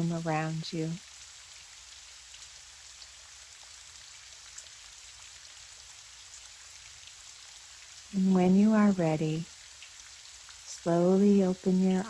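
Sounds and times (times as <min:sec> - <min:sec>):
gentle rain hiss: 0:00.0 - 0:12.0
raindrops ticking: 0:07.8 - 0:12.0.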